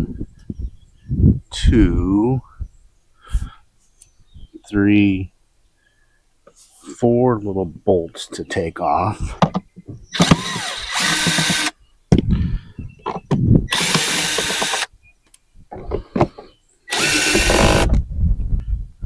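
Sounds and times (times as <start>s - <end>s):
cordless drill whirring: 10.1s - 11.8s, 13.7s - 14.9s, 16.9s - 17.9s.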